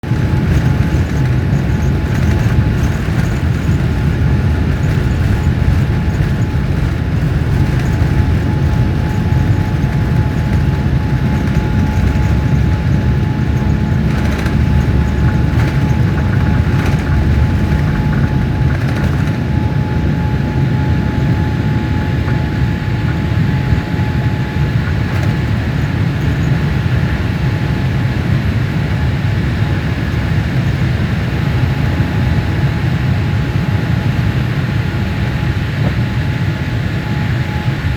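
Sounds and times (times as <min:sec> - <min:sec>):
airliner cabin rumble: 0:00.0 - 0:37.9
light rattles: 0:00.1 - 0:27.0
thin steady whine: 0:00.1 - 0:28.5.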